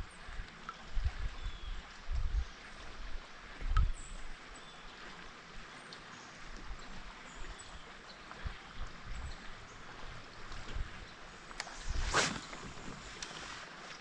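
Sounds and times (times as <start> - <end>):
dull low bumps on kayak: 8.4 - 13.6.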